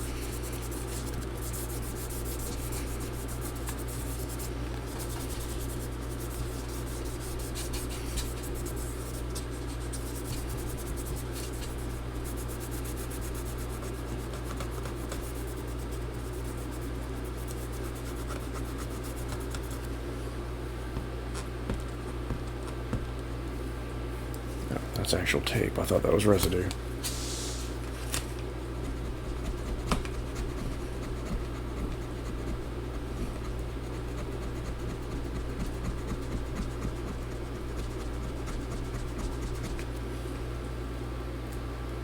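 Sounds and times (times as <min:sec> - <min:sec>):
rubbing on metal case: 0:00.0 - 0:19.9, 0:28.9 - 0:39.9.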